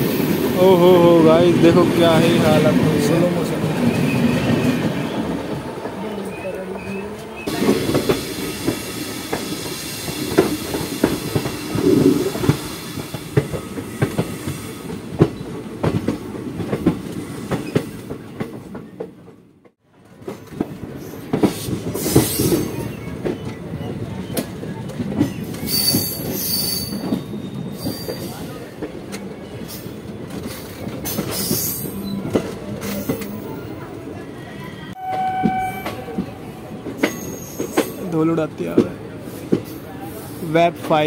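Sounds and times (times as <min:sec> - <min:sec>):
train rumble: 0:00.0 - 0:41.0
high wheel squeal: 0:25.6 - 0:28.5, 0:34.2 - 0:38.0.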